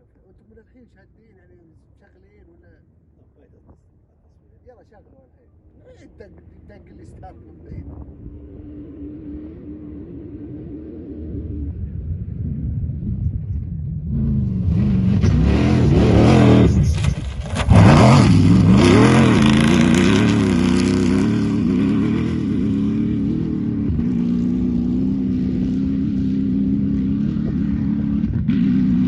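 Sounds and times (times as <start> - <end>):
vehicle engine revving and idling: 6.4 - 29.0.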